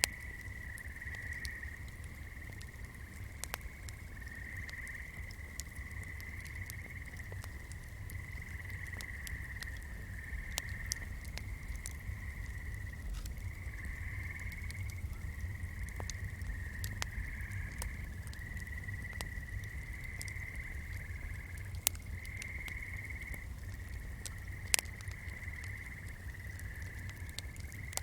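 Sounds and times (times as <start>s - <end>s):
sharp clicks and crackles: 0.0s - 4.0s, 4.6s - 28.0s
frogs trilling: 0.0s - 28.0s
low steady rumble: 7.3s - 28.0s.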